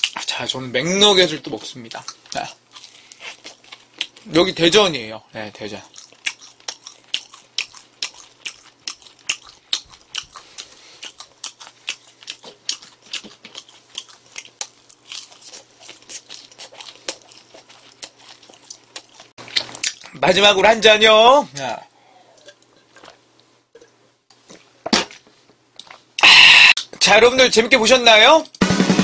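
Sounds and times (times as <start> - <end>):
chewing crispy food: 0.0 - 20.3.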